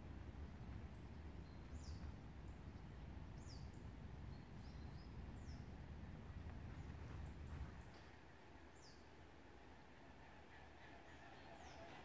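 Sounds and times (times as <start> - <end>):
faint low rumble: 0.0 - 9.2.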